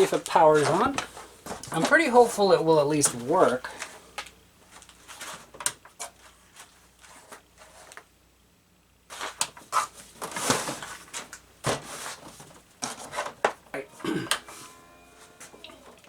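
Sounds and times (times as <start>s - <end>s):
rustling of cable handling: 3.1s - 8.1s.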